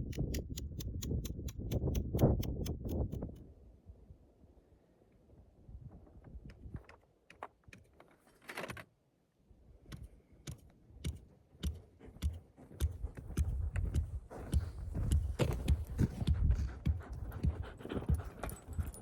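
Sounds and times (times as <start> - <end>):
camping gear clicking and knocking: 9.9 - 19.0.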